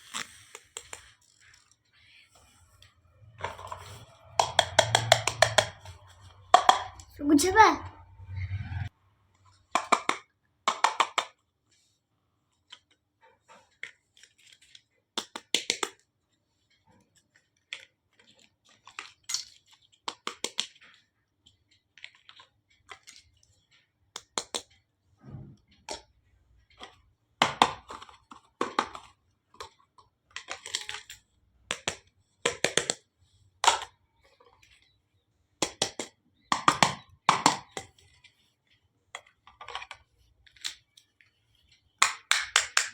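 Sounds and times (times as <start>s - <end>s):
clinks and taps of toy cookware: 3.4s - 7.1s, 9.8s - 11.4s, 42.0s - 42.9s.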